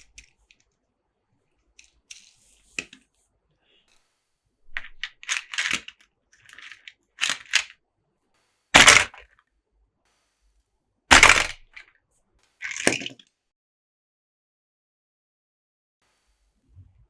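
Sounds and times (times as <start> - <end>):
packaging rustling and scraping: 6.4 - 7.6, 8.8 - 9.2.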